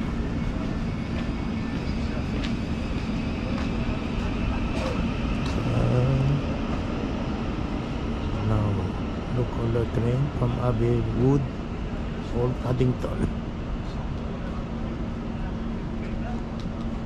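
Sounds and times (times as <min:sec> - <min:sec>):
faint voices: 0:00.0 - 0:07.0
train rumbling: 0:00.0 - 0:17.0.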